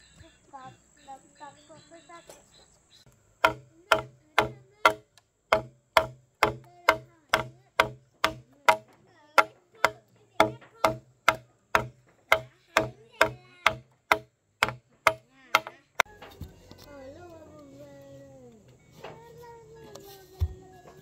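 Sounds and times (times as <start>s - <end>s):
hand tool striking wood: 3.4s - 16.5s.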